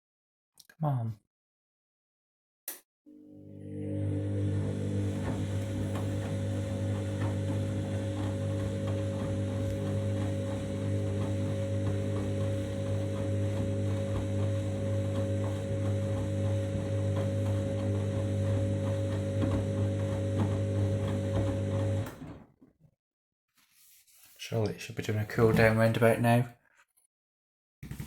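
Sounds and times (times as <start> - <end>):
washing machine motor hum: 3.1 - 22.4.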